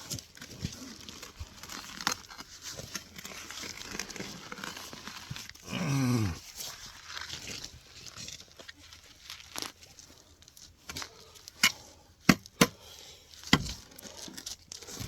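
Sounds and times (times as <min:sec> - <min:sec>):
tool scraping wet soil: 0:00.0 - 0:09.8
person grunting: 0:05.6 - 0:06.4.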